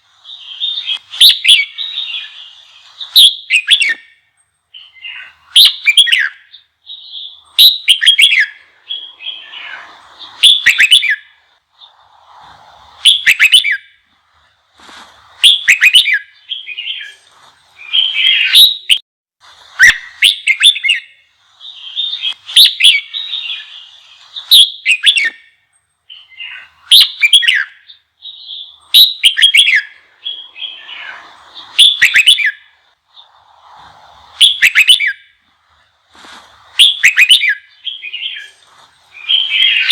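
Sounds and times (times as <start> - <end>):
bulbul chattering song: 0.1 - 12.1, 15.3 - 19.0, 19.8 - 25.5, 26.1 - 33.4, 34.2 - 35.8, 36.6 - 39.9.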